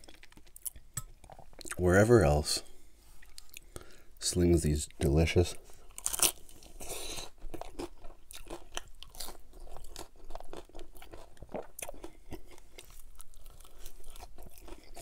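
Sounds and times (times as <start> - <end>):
crunchy taco shell chewing: 0.0 - 1.8, 5.9 - 15.0.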